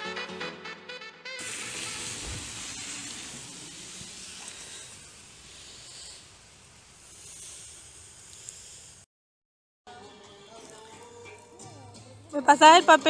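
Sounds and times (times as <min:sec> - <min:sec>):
rain hissing: 0:01.4 - 0:09.1.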